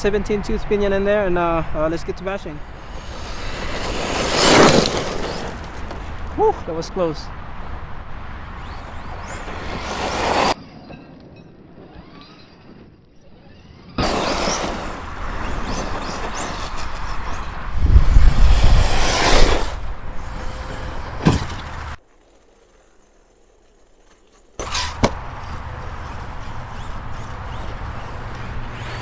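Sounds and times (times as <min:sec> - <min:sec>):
tyres crunching on loose ground: 0:02.7 - 0:07.5, 0:18.4 - 0:29.0
heavy thump: 0:21.1 - 0:21.8
electric motor whining: 0:24.6 - 0:29.0.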